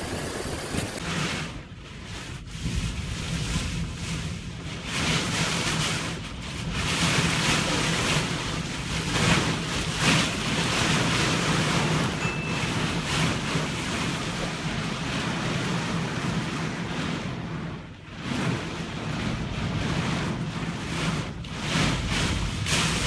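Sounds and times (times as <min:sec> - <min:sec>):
rushing water in surges: 0:00.0 - 0:01.6
wind: 0:00.0 - 0:23.0
wind buffeting microphone: 0:00.0 - 0:23.0.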